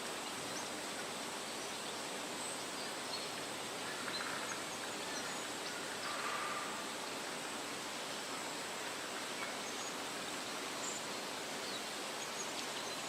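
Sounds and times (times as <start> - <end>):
wind rustling tree leaves: 0.0 - 13.0.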